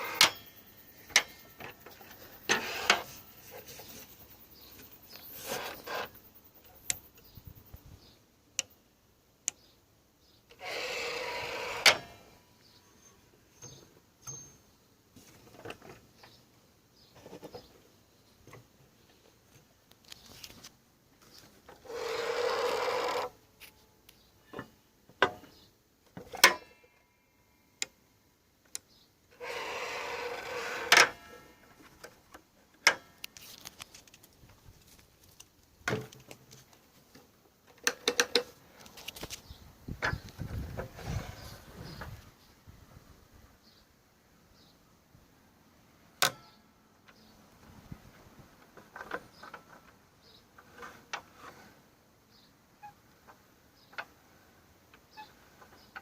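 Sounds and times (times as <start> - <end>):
saw parts clicking and knocking: 0.0 - 3.2, 37.7 - 39.2
rough rubbing sound: 2.0 - 6.2, 29.4 - 31.4, 40.5 - 42.0.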